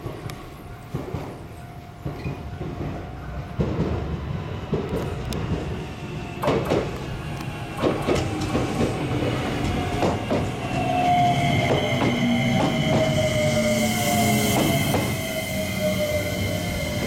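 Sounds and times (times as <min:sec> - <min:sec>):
train wheels clacking: 0:00.0 - 0:17.0
train brake whine: 0:05.9 - 0:17.0.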